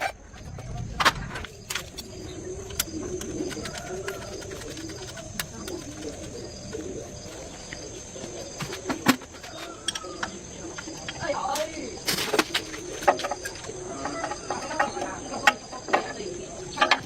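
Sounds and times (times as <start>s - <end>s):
birds calling: 0.0s - 17.0s.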